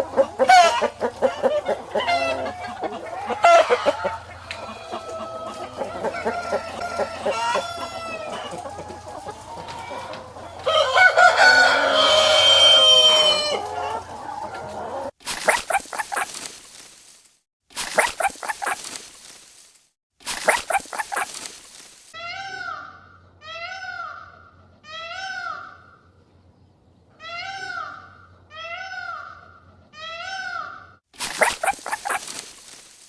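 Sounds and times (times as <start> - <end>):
rooster crowing: 0.0 - 14.0
chickens clucking: 0.0 - 16.9, 17.8 - 19.1, 20.3 - 22.0, 31.2 - 33.0
fast rattling calls: 15.3 - 17.1, 17.7 - 22.2, 31.2 - 33.0.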